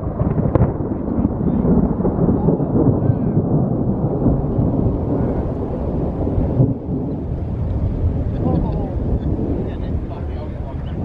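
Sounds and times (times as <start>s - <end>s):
thunder rumbling: 0.0s - 11.0s.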